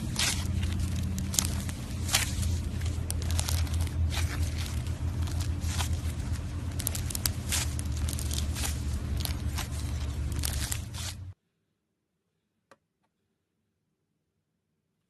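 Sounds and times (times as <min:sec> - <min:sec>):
slime crackling and popping: 0:00.0 - 0:11.4.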